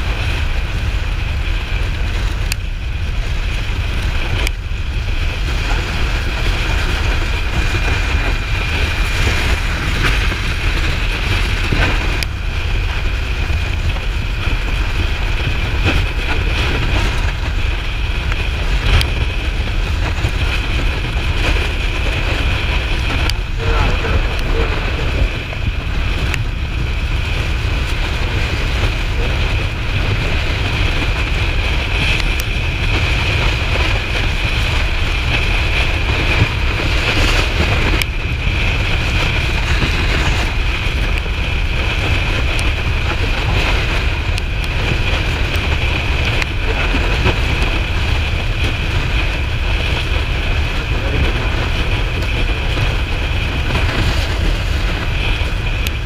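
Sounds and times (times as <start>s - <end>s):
motorcycle running: 0.0s - 56.0s
wind noise on microphone: 0.0s - 56.0s.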